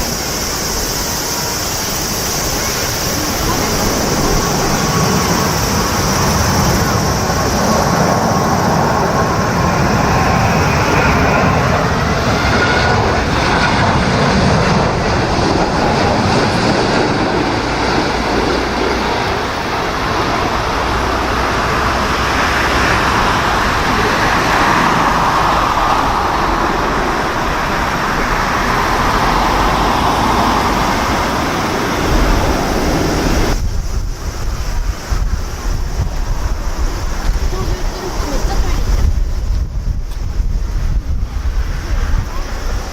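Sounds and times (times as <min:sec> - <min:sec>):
jet engines roaring: 0:00.0 - 0:42.9
wind buffeting microphone: 0:00.0 - 0:42.9.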